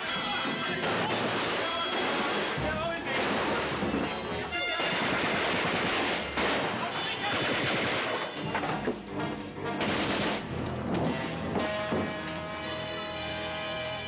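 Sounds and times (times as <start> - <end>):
machine-gun fire: 0.8 - 4.0, 4.7 - 8.4, 9.8 - 10.5.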